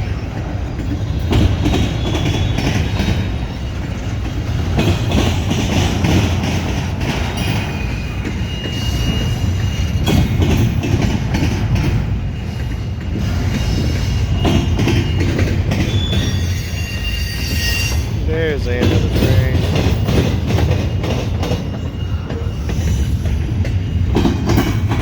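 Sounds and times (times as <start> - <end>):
freight train rumble: 0.0 - 25.0
wheels clicking over rail joints: 0.0 - 25.0
wheel squeals: 0.2 - 4.2, 7.3 - 10.8, 12.2 - 18.6, 19.3 - 24.9.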